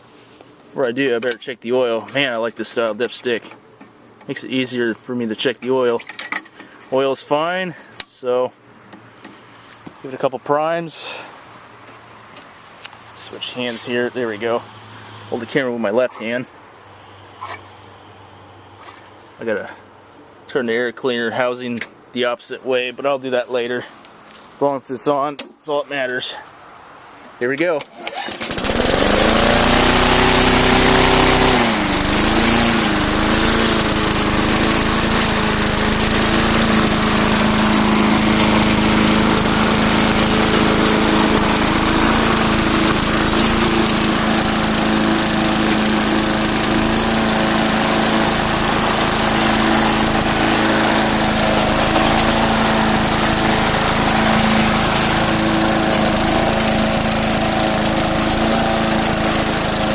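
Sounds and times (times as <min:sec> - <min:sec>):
lawn mower engine running: 0:27.9 - 0:59.9.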